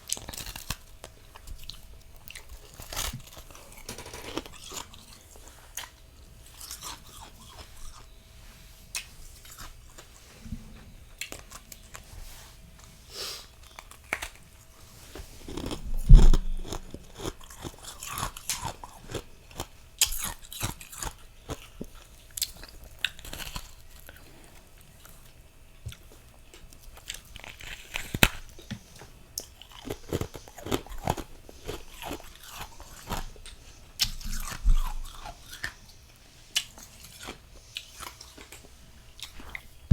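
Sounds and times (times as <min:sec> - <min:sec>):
chewing crunchy frost: 0:00.0 - 0:08.1, 0:08.9 - 0:10.2, 0:13.6 - 0:39.9
loud crunch and thud: 0:15.8 - 0:17.0.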